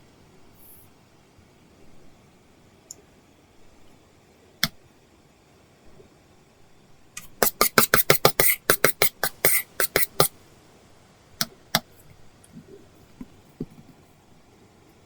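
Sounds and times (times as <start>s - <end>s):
stylus scratching on screen: 7.2s - 10.3s.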